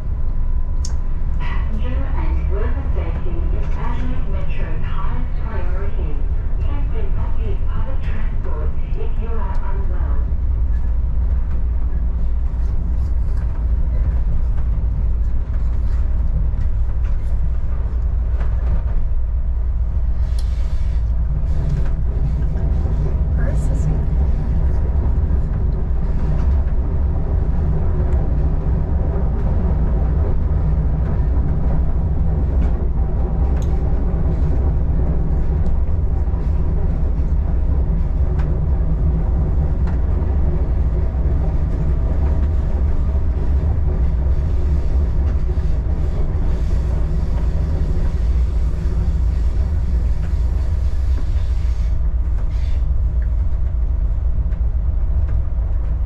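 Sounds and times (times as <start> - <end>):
diesel railcar engine drone: 0.0 - 56.0
light clicks from track: 0.8 - 1.0.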